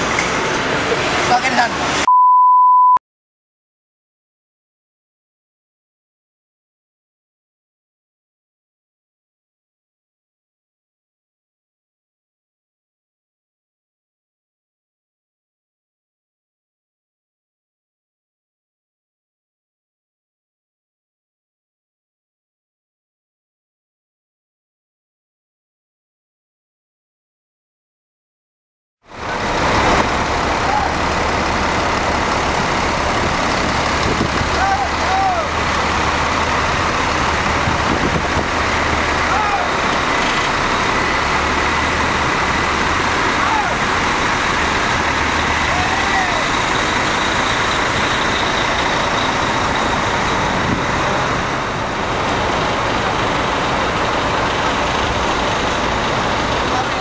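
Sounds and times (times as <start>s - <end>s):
bus engine hum: 0.0s - 2.1s, 29.1s - 57.0s
road and cabin noise: 0.0s - 3.0s, 29.1s - 57.0s.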